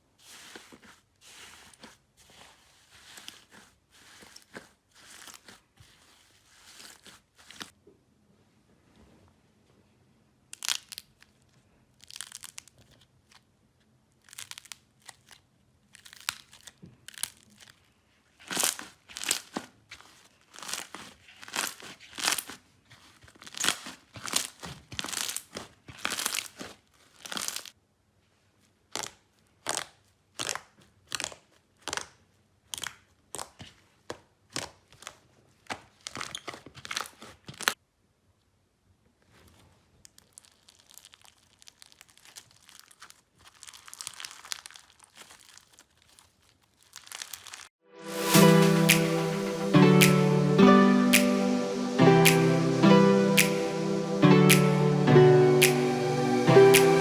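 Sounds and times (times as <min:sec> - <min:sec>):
slime crackling when squeezed: 0:12.0 - 0:13.0, 0:40.1 - 0:47.7.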